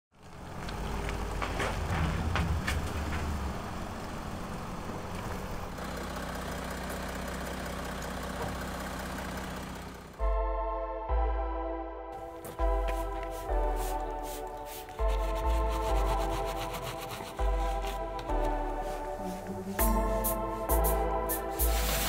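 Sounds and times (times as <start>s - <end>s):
car engine running: 0.1s - 10.4s, 12.2s - 22.0s
music with synth notes: 10.2s - 22.0s.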